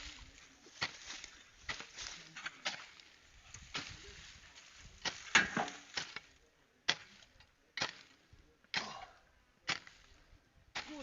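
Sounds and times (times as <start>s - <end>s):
hoe striking the ground: 0.8s - 1.1s, 5.0s - 6.3s, 6.9s - 9.0s, 9.7s - 10.1s, 10.7s - 11.0s.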